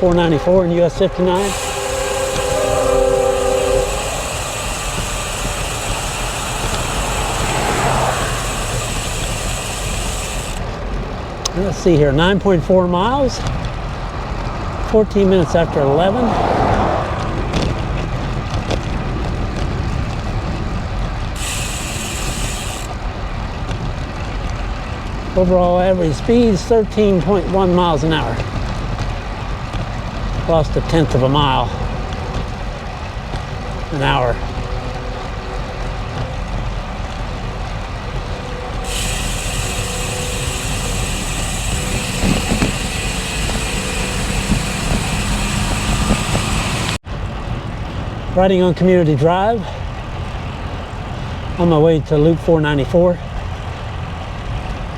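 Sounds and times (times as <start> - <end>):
bicycle road noise: 0.0 - 54.9
motor traffic: 0.0 - 54.9
wind rushing over microphone: 0.0 - 54.9
hiss: 1.4 - 10.6, 21.4 - 22.9, 38.8 - 47.0.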